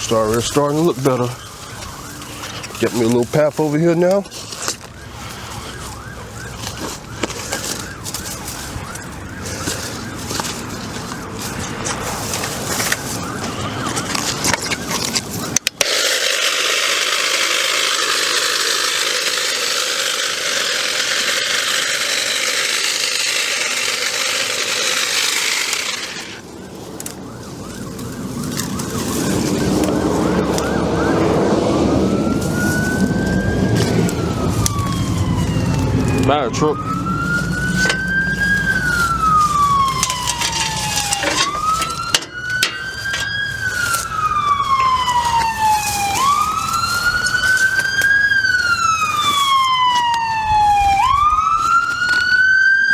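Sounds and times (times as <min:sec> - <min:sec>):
fire truck siren wailing: 0:00.0 - 0:52.9
electric cutting tool running: 0:15.7 - 0:26.4, 0:28.5 - 0:50.3.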